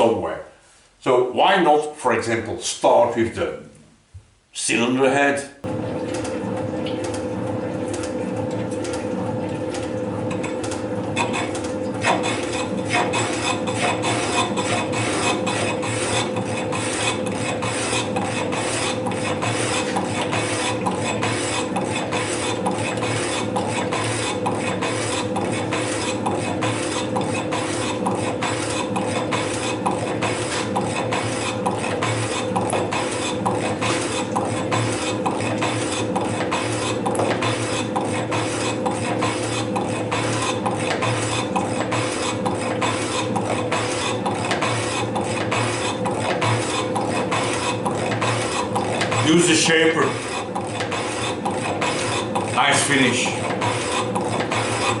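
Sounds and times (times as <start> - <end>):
machine tool motor hum: 5.6 - 55.0
metal scraping cutting strokes: 10.5 - 55.0.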